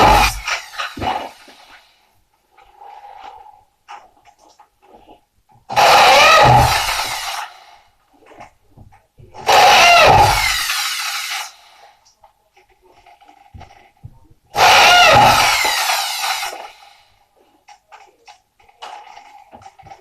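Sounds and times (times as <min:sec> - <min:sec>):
power drill bursts winding down: 0:00.0 - 0:01.8, 0:05.7 - 0:07.7, 0:09.5 - 0:11.8, 0:14.6 - 0:17.0.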